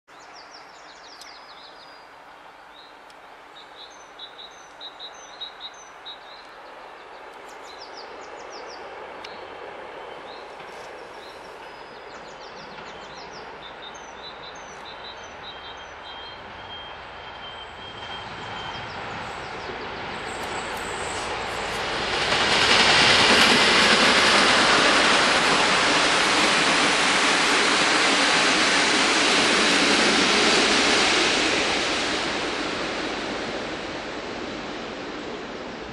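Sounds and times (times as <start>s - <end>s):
train approaching: 0.2s - 35.9s.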